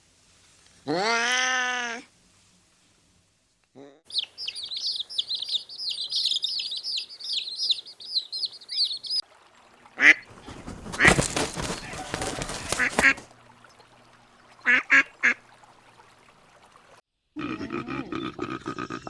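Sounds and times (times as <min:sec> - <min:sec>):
small bird chirping: 0:04.1 - 0:09.2.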